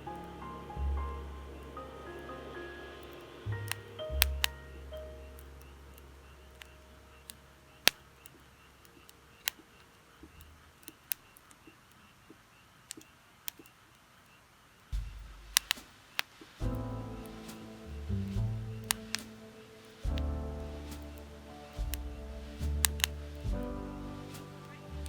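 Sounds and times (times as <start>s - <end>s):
fire hissing: 0.0s - 8.4s, 14.9s - 25.0s
fire popping: 0.0s - 12.0s, 14.8s - 25.0s
firewood crackling: 0.0s - 25.0s.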